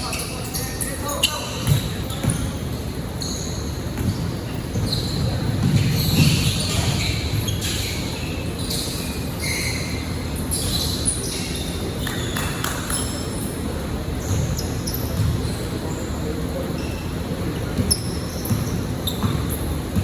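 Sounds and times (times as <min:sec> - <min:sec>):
sneaker squeaks: 0:00.0 - 0:20.0
basketball bouncing on court: 0:01.5 - 0:02.8, 0:03.9 - 0:08.0, 0:14.2 - 0:15.6, 0:17.6 - 0:20.0.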